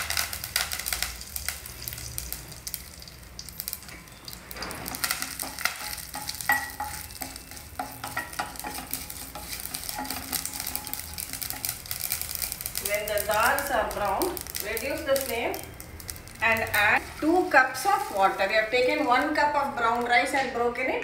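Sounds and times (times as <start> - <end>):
seeds sizzling in hot oil: 0.0 - 20.6
wooden spoon stirring: 4.8 - 19.2.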